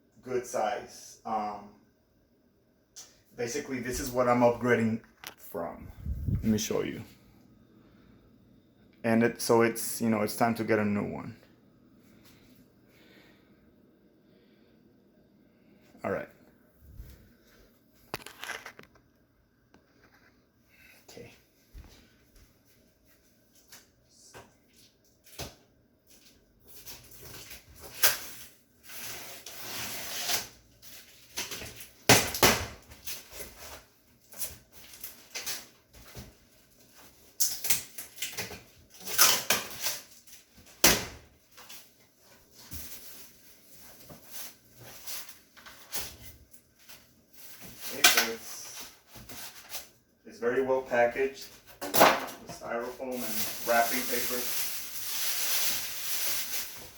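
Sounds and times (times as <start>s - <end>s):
styrofoam and paper packing handled: 26.1s - 32.1s, 41.4s - 50.0s, 52.5s - 56.9s.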